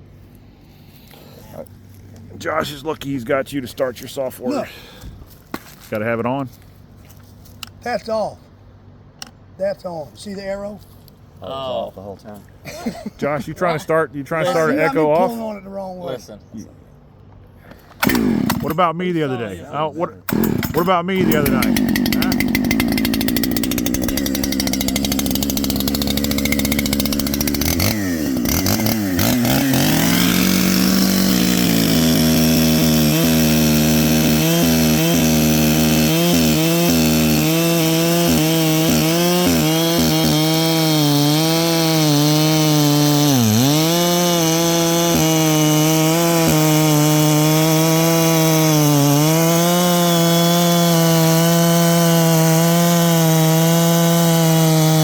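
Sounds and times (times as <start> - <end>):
chainsaw running at high revs: 18.0 - 18.8, 20.3 - 55.0.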